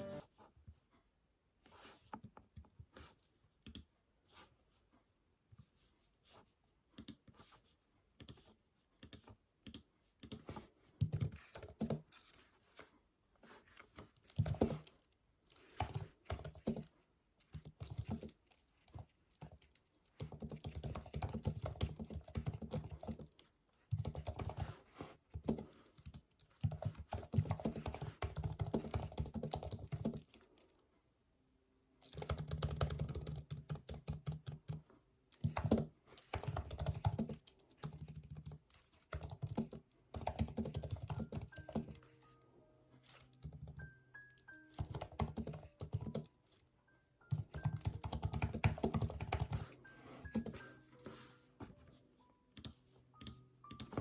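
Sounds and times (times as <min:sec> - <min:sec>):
typing on computer keyboard: 0:08.2 - 0:12.4, 0:14.2 - 0:30.7, 0:32.0 - 0:42.0, 0:43.1 - 0:46.6, 0:47.3 - 0:50.7, 0:52.6 - 0:54.0.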